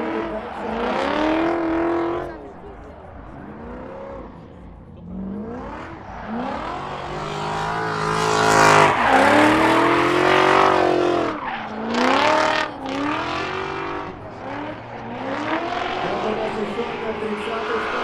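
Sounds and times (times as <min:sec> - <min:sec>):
car engine revving hard: 0:00.0 - 0:18.0
tyres squealing: 0:06.1 - 0:18.0.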